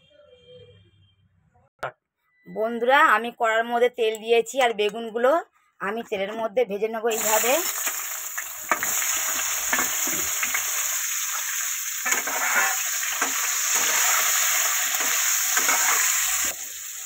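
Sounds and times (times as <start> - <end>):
eggplant sizzling in oil: 7.1 - 17.0
metal spatula scraping pan: 12.0 - 16.6.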